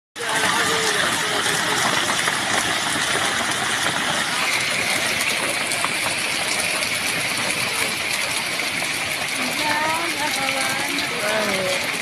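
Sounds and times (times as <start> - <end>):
heavy rain with hail: 0.2 - 12.0.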